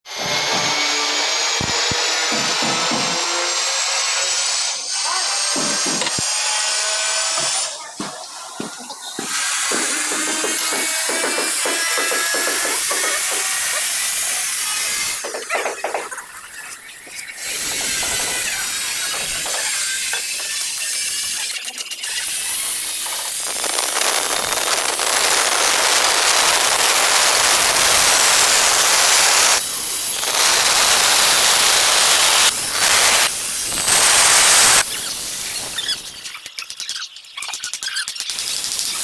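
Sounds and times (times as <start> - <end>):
angle grinder cutting tile: 0.1 - 8.0, 9.1 - 16.2, 17.4 - 35.2.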